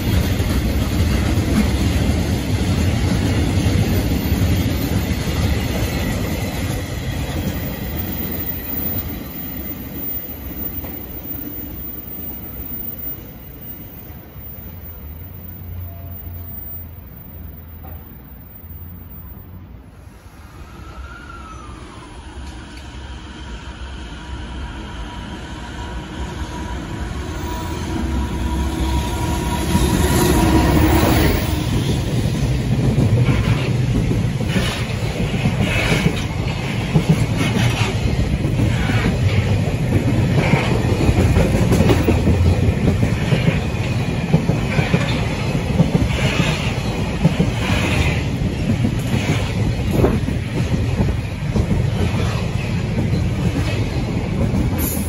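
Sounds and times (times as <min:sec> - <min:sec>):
freight train wheels clattering: 0:29.3 - 0:55.0.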